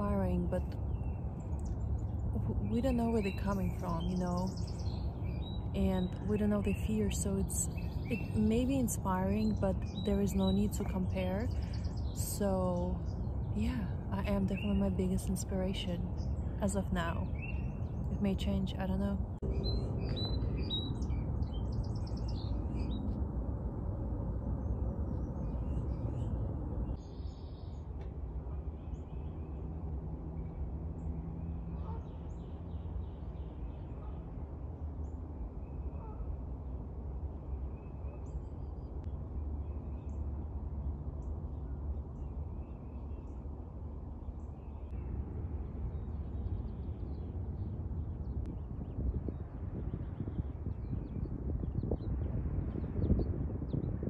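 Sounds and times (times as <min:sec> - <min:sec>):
small birds chirping: 0:00.0 - 0:23.2
low outdoor rumble: 0:00.0 - 0:54.0.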